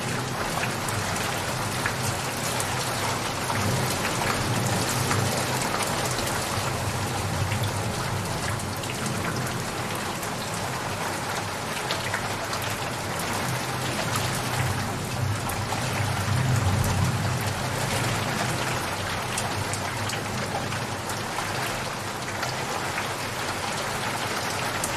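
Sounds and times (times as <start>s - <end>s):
raindrops pattering: 0.0s - 24.9s.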